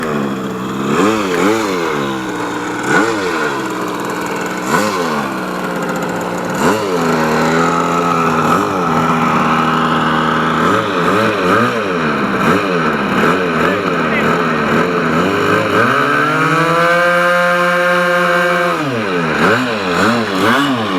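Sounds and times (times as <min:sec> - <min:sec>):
engine throttle blips: 0:00.0 - 0:20.9
model plane engines running: 0:00.0 - 0:20.9.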